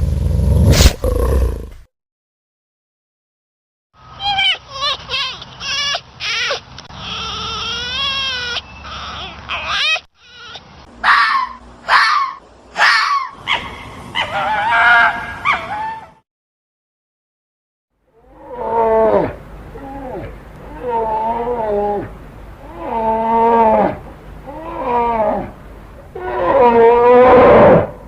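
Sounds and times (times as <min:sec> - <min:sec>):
animal high-pitched wavering cries: 0:06.2 - 0:12.4, 0:18.2 - 0:25.5.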